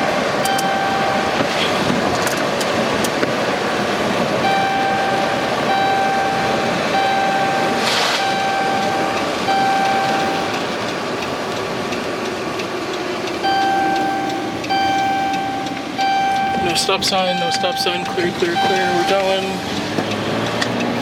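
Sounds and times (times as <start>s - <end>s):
vehicle road and cabin noise: 0.0s - 21.0s
electronic beeps: 0.4s - 2.3s, 4.4s - 10.8s, 13.4s - 19.6s.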